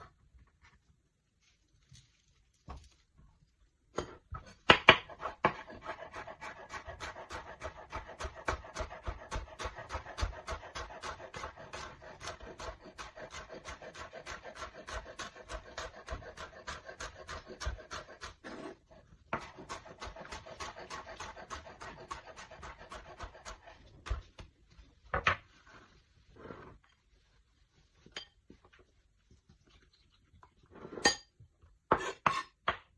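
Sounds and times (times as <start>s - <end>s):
rapid food preparation strokes: 5.0s - 28.1s.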